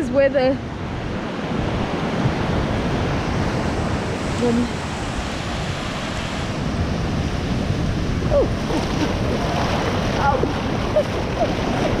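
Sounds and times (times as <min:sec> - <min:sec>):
surf and water rushing: 0:00.0 - 0:12.0.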